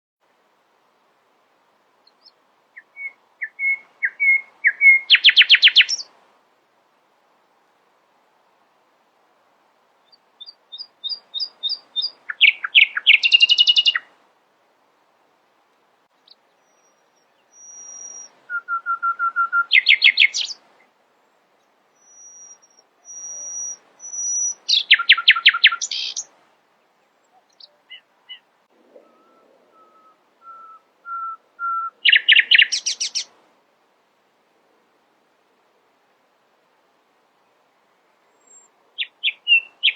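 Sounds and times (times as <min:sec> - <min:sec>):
nightingale singing: 0:02.0 - 0:06.2, 0:10.0 - 0:14.1, 0:16.1 - 0:26.4, 0:27.0 - 0:33.4, 0:38.3 - 0:39.9.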